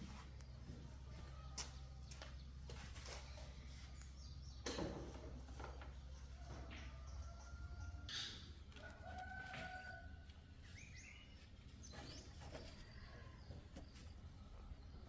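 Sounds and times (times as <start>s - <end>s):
faint rooster crowing: 6.2s - 11.3s.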